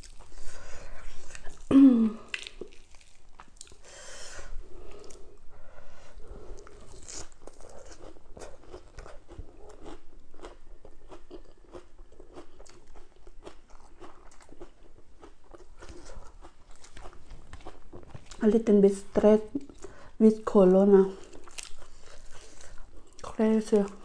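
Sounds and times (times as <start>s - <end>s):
crisp crunching of chewing: 0.0s - 3.8s, 6.6s - 18.5s, 21.2s - 24.0s.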